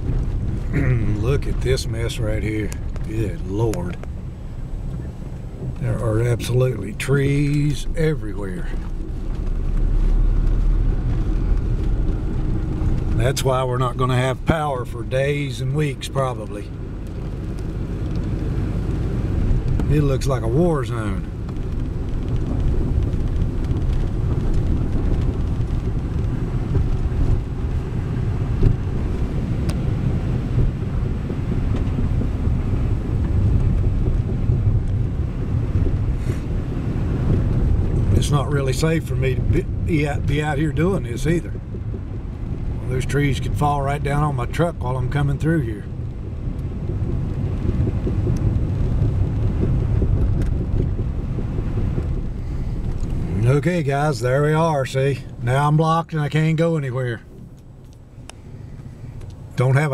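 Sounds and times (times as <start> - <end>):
pickup truck rumbling: 0.0 - 59.9
knocks and rattles in cab: 16.7 - 55.5.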